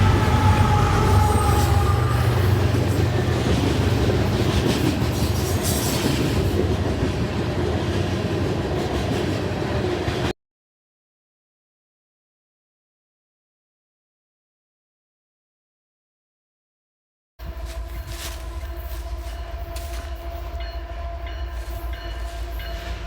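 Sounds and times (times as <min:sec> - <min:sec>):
diesel locomotive engine rumble: 0:00.0 - 0:10.3, 0:17.4 - 0:23.0
rail cars rolling on track: 0:00.0 - 0:10.3, 0:17.4 - 0:23.0.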